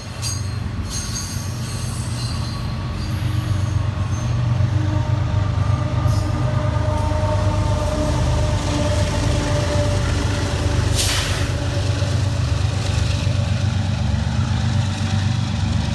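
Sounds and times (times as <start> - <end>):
train engine rumble: 0.0 - 15.9
air hiss: 11.0 - 11.6.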